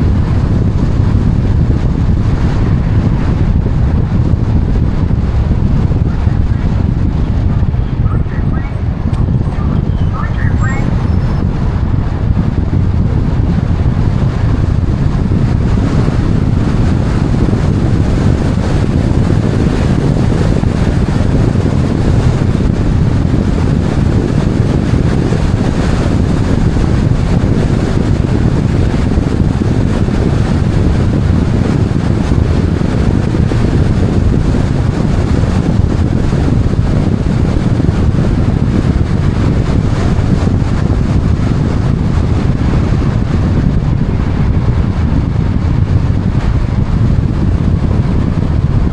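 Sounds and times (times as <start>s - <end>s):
vehicle noise: 0.0s - 48.9s
wind rumble: 0.0s - 48.9s.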